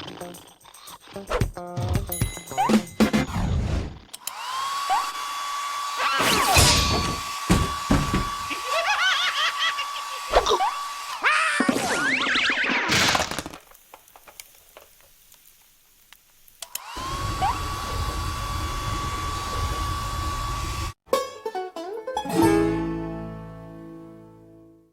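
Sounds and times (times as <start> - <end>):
cartoon hair dryer whine: 4.2 - 12.9, 16.6 - 21.0
plucked-string musical chord: 21.1 - 24.8.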